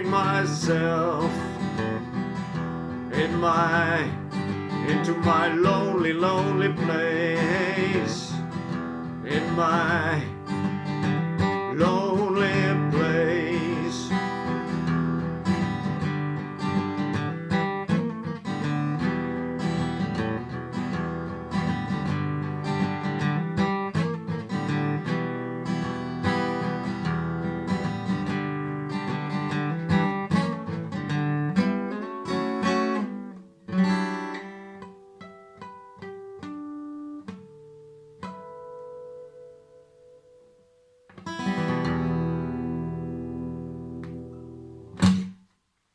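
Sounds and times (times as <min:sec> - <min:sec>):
person singing: 0:00.0 - 0:02.2, 0:03.0 - 0:10.7, 0:11.5 - 0:14.7.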